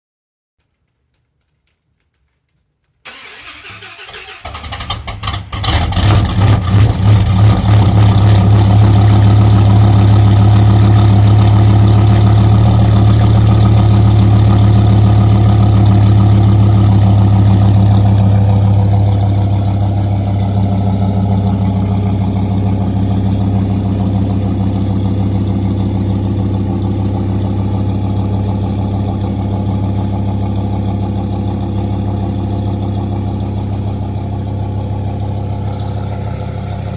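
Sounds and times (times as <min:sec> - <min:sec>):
engine cranking: 0:03.1 - 0:06.4
engine idling loudly: 0:05.0 - 0:36.9.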